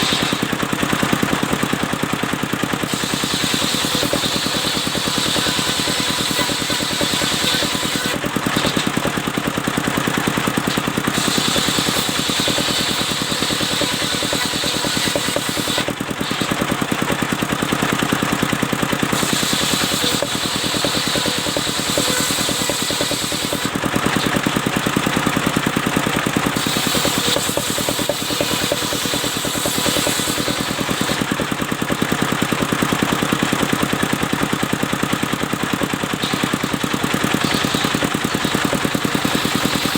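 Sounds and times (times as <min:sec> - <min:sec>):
sawmill engine running: 0:00.0 - 0:39.9
saw blade hissing through wood: 0:02.9 - 0:08.2, 0:11.1 - 0:16.6, 0:19.1 - 0:24.4, 0:26.6 - 0:31.3, 0:36.2 - 0:39.9.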